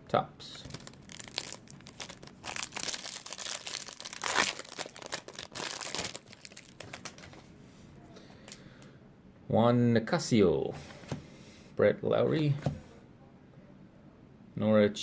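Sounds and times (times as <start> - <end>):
wrapper tearing and crinkling: 0.6 - 7.4.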